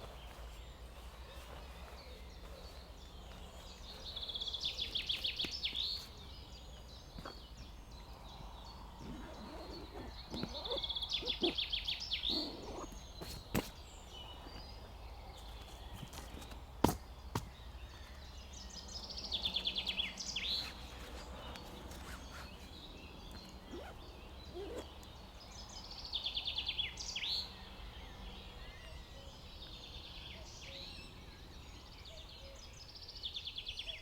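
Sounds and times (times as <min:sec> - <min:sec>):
soft rustling: 0:00.0 - 0:06.3, 0:20.5 - 0:22.9
faint outdoor background: 0:00.0 - 0:34.0
songbird trilling: 0:09.0 - 0:13.3, 0:21.6 - 0:25.2.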